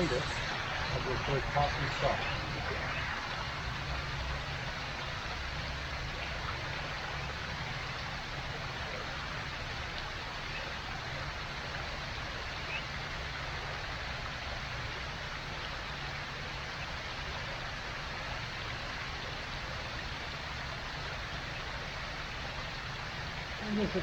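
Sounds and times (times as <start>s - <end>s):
steady rushing hiss: 0.0s - 16.7s.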